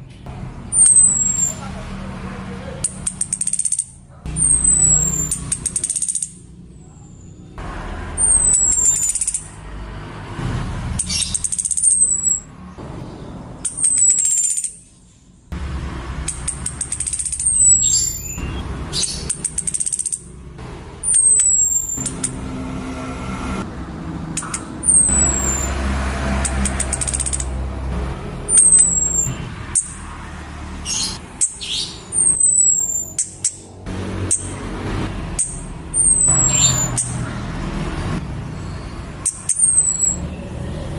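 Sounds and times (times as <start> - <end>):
thrush high whistled calls: 0.7 - 1.8, 2.7 - 9.6, 10.9 - 12.6, 13.6 - 15.1, 16.2 - 20.4, 21.0 - 22.6, 24.4 - 27.6, 28.4 - 30.2, 30.8 - 34.7, 35.3 - 37.3, 38.5 - 40.5.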